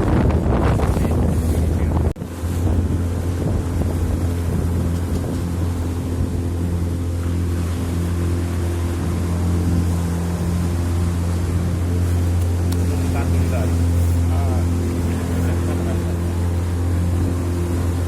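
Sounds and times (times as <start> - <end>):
boat engine droning: 0.0 - 18.0
water noise: 0.0 - 18.0
wind on microphone: 0.0 - 18.0.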